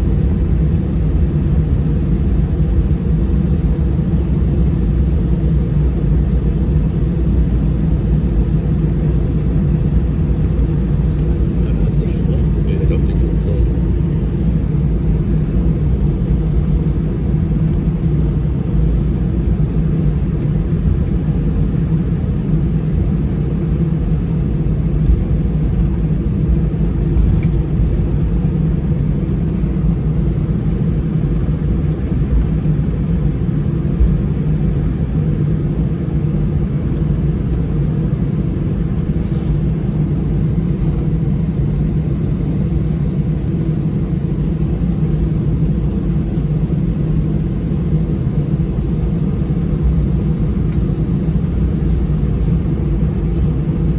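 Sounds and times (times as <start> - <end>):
aircraft engines idling: 0.0 - 53.9.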